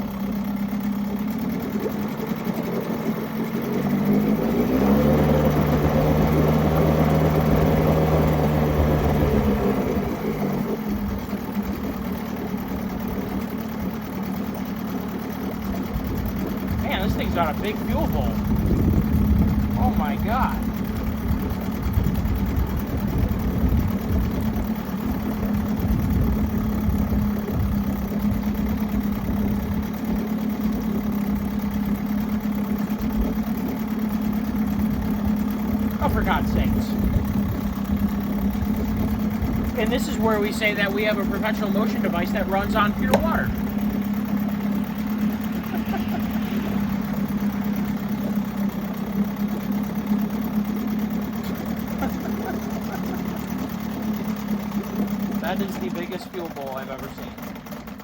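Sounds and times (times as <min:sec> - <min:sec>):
outboard motor idling: 0:00.0 - 0:58.0.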